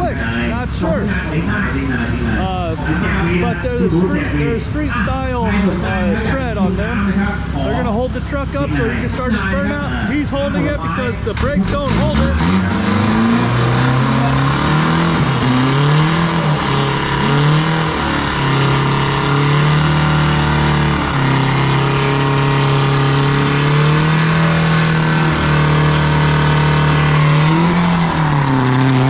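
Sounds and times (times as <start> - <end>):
diesel truck engine revving: 0.0 - 29.0
tyres spinning: 11.2 - 29.0.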